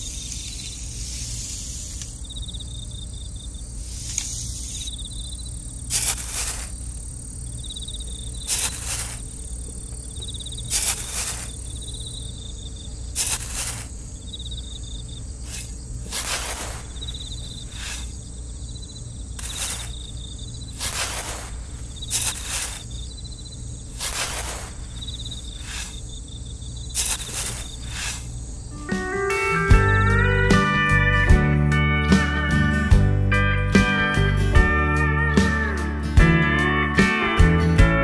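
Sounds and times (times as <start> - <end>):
trowel scraping sand: 0.0 - 2.2, 3.8 - 5.0, 5.9 - 7.0, 8.3 - 9.4, 10.6 - 11.8, 13.1 - 14.0, 15.4 - 18.2, 19.4 - 20.1, 20.7 - 23.0, 23.9 - 26.1, 26.9 - 28.4
cricket chirping: 0.0 - 29.8.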